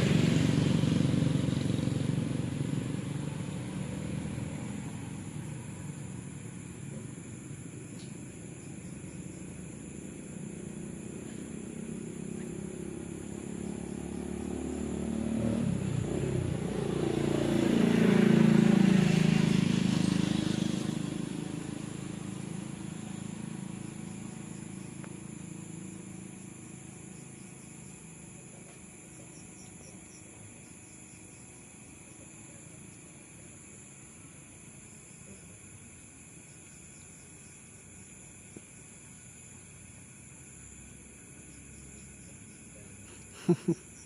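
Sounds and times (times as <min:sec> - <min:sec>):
vehicle engine passing by: 0:00.0 - 0:33.0.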